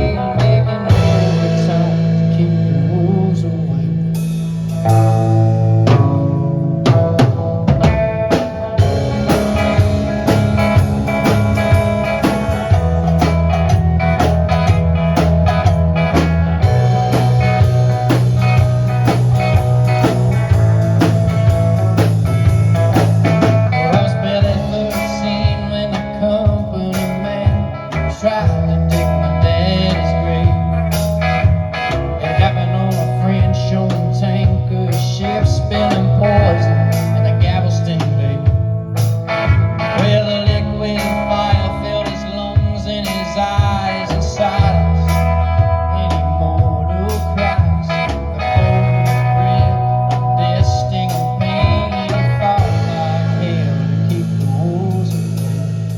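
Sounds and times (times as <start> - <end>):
live blues-rock band with singing: 0.0 - 55.9.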